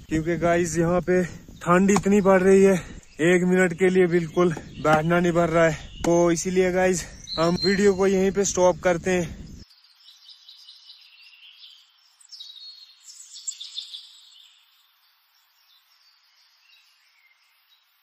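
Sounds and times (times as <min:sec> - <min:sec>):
birds chirping and singing: 0:00.0 - 0:18.0.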